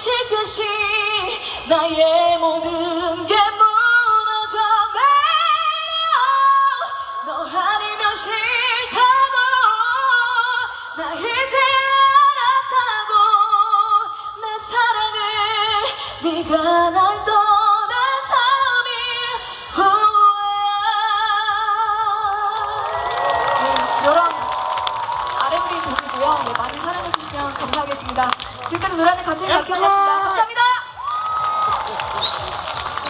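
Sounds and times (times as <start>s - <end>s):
woman singing a cappella: 0.0s - 22.6s.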